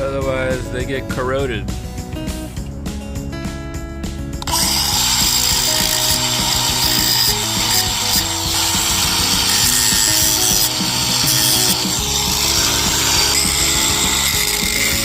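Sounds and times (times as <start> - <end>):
abrasive tool scraping metal: 4.4 - 15.0.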